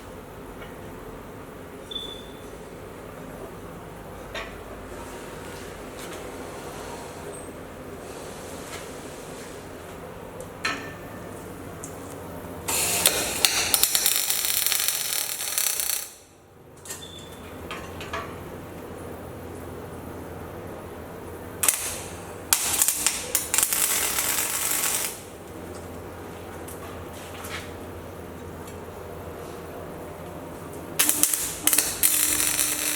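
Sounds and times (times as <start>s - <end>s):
crackling welding arc: 12.6s - 16.4s, 21.6s - 25.5s, 31.0s - 32.9s.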